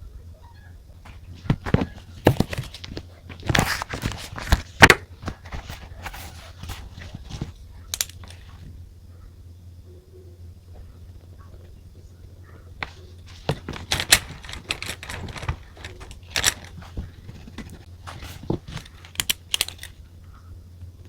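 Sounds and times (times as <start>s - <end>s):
low steady hum: 0.0s - 21.0s
paper or plastic crinkling: 1.0s - 8.7s, 12.8s - 20.0s.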